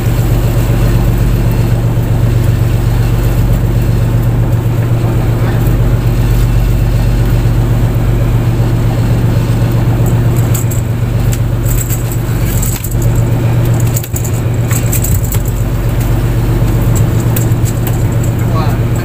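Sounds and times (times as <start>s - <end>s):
boat engine humming: 0.0s - 19.0s
light clicks and rattles: 10.0s - 19.0s.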